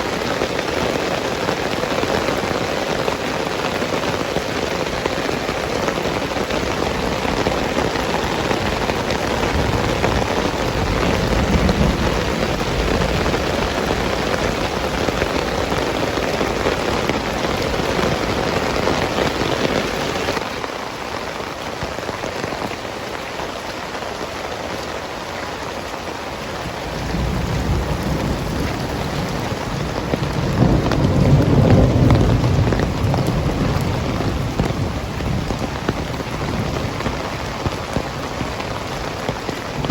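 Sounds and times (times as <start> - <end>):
heavy rain pouring: 0.0 - 39.9
thunder rumble: 5.0 - 20.4, 26.4 - 39.9.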